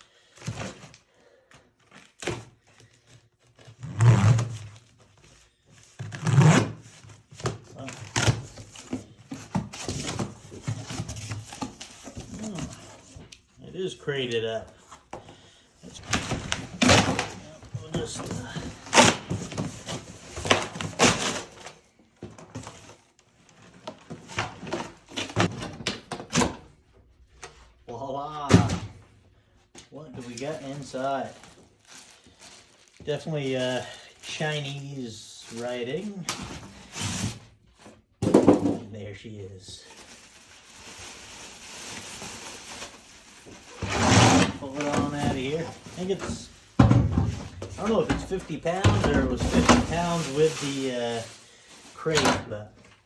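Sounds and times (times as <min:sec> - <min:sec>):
crate scraping: 0:43.6 - 0:51.3.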